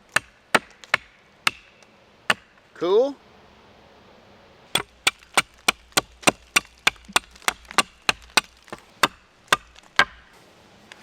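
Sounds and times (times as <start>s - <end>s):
hatchet chopping wood: 0.1s - 2.6s, 4.7s - 10.3s.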